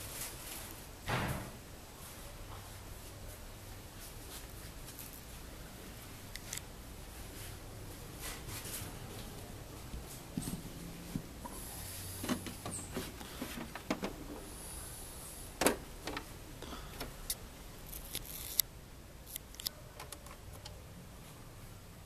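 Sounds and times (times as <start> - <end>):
hissy scrapes: 11.4 - 15.6.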